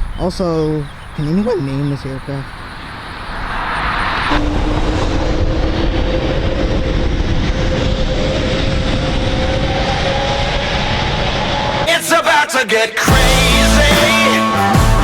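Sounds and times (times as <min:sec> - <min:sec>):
aircraft engine whine rising: 0:02.6 - 0:11.9.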